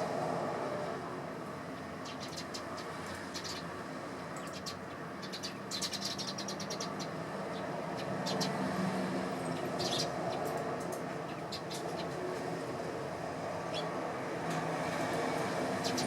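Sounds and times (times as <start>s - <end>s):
sparrows chirping: 1.6s - 12.4s, 13.4s - 14.8s, 15.5s - 16.0s.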